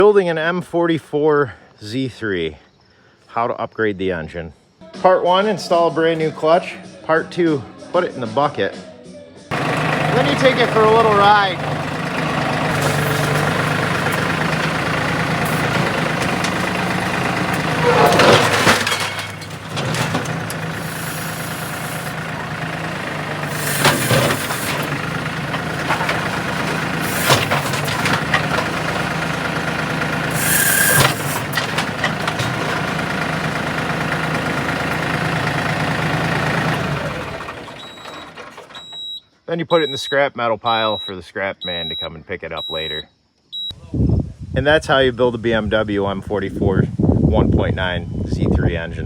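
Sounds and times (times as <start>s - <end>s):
loud crashes and clatters: 9.5s - 38.8s
heavy machine engine droning: 9.5s - 39.0s.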